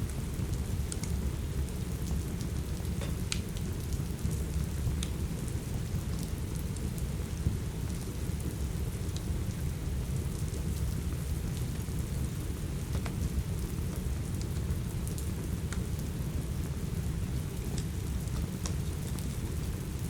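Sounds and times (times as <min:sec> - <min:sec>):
steady rain: 0:00.0 - 0:20.0
wood fire popping: 0:02.9 - 0:03.7.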